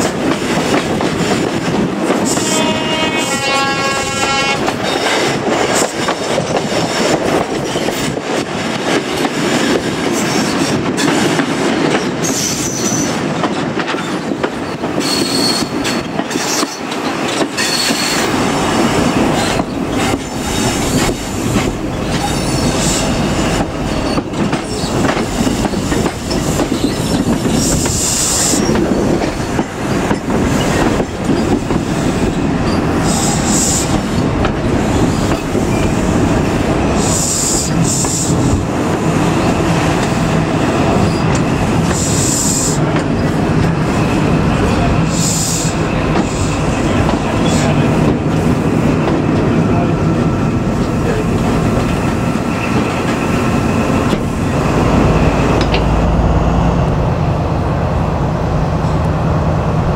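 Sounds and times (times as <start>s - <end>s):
rail-joint clicks: 0.0s - 2.6s, 4.4s - 56.1s
train engine and wheels rumbling: 0.0s - 59.9s
train horn: 2.2s - 4.8s.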